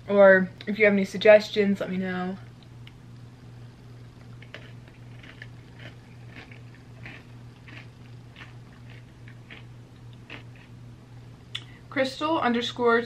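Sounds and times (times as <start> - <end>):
steady low hum: 0.0 - 13.0
wet chewing and mouth smacks: 4.2 - 10.7.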